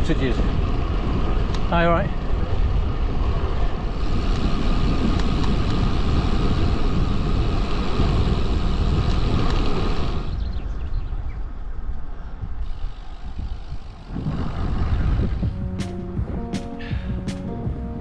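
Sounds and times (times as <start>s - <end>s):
wind rushing over microphone: 0.0s - 15.5s.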